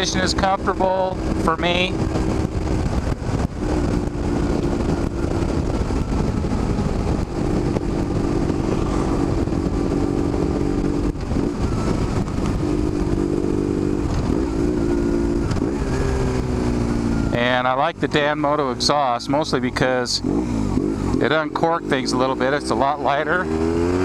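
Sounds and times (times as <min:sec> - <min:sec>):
wind buffeting microphone: 0:00.0 - 0:18.8
motorcycle engine running: 0:00.0 - 0:24.0.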